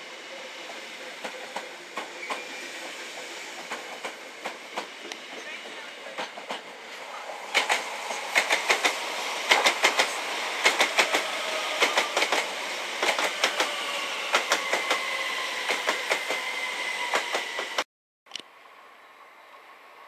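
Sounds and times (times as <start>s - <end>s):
train rumble: 0.4s - 17.8s
train wheels clicking over rail joints: 3.6s - 6.8s, 7.5s - 16.4s.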